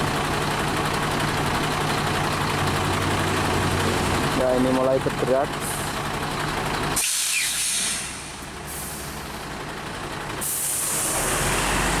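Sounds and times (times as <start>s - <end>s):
truck engine rumble: 0.0s - 12.0s
truck air brakes hissing: 6.9s - 9.3s, 10.4s - 12.0s.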